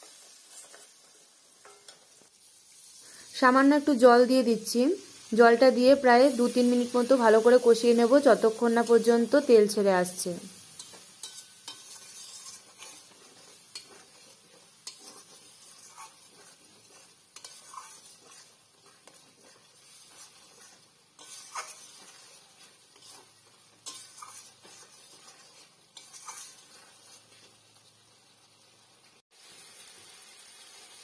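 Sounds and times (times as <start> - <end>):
masala sizzling in a pan: 0.0 - 31.0
spatula scraping a pan: 0.1 - 2.2, 10.6 - 27.8.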